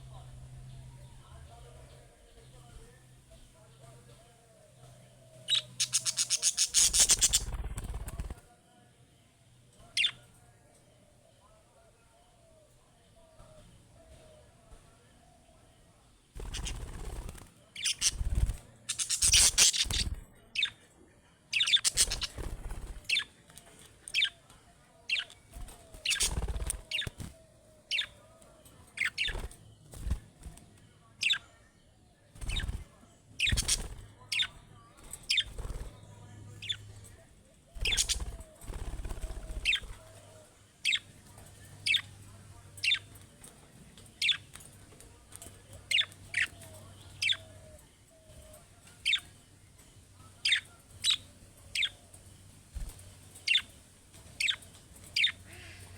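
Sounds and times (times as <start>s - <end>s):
budgerigars chirping: 5.5s - 8.2s, 17.8s - 18.3s, 18.9s - 20.7s, 21.6s - 23.2s, 33.4s - 34.5s, 37.8s - 38.3s, 39.6s - 39.9s, 47.2s - 47.4s, 54.4s - 54.6s, 55.2s - 55.8s
wing fluttering: 5.5s - 8.5s, 16.3s - 20.7s, 21.5s - 24.3s, 25.1s - 28.2s, 29.0s - 31.4s, 32.3s - 42.0s, 50.4s - 55.9s.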